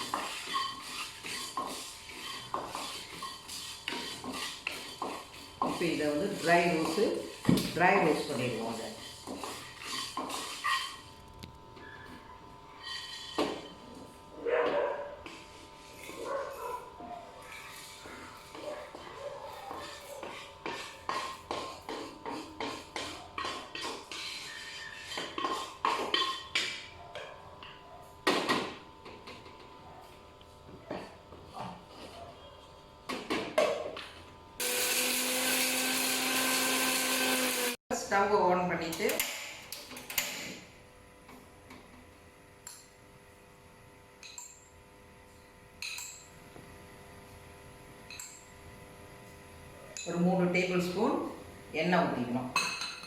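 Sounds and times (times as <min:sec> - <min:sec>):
spatula scraping metal pan: 0:00.0 - 0:11.1, 0:12.8 - 0:13.8, 0:19.7 - 0:26.8
metal cookware clinking: 0:52.6 - 0:53.0.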